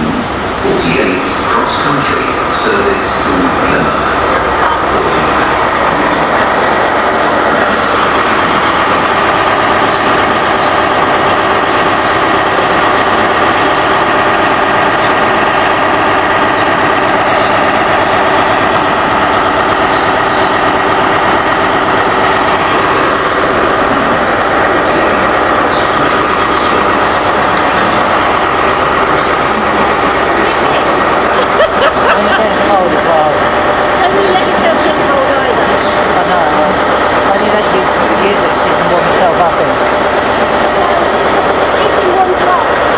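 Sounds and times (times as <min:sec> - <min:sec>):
diesel train engine whining: 0:00.0 - 0:42.9.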